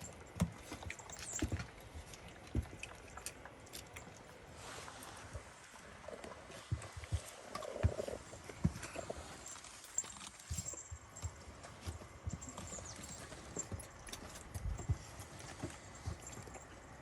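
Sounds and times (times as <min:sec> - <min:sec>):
puppies suckling and smacking: 0:00.0 - 0:17.0
small bells jingling: 0:09.0 - 0:15.1.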